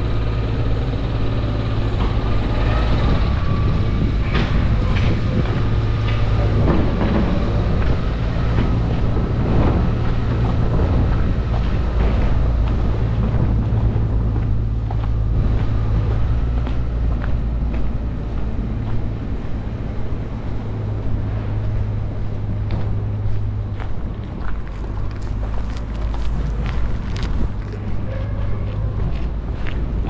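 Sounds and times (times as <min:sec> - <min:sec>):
large vehicle engine drone: 0:00.0 - 0:30.0.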